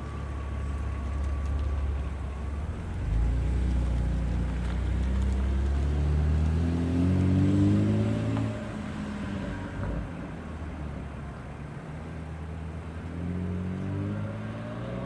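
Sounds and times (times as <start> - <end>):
vehicle engine accelerating: 0.0 - 10.2.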